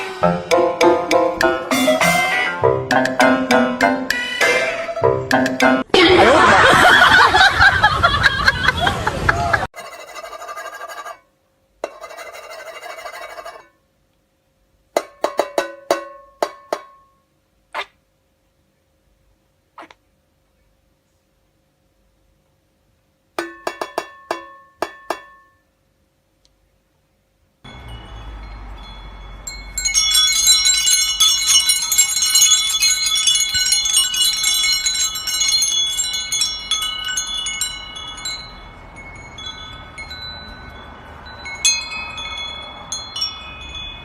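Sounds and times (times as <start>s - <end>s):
metal chimes ringing: 27.6s - 44.0s.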